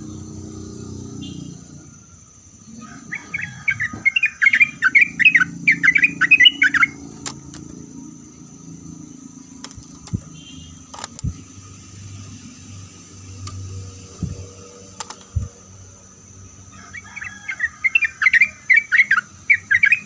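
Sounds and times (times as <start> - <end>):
low steady hum: 0.0 - 17.0
bird warbling song: 0.0 - 20.0
sharp clicks: 7.0 - 7.8, 9.4 - 11.6, 13.2 - 15.6.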